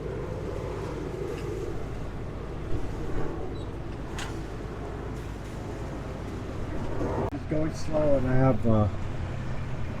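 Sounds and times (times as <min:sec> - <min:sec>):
wind on microphone: 0:00.0 - 0:07.4
boat engine rumbling: 0:00.0 - 0:10.0.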